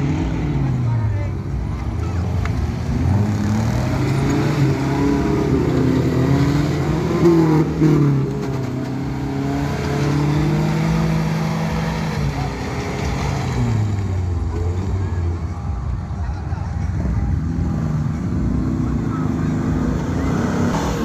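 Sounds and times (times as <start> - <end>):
vehicle engine running hard: 0.0 - 21.0.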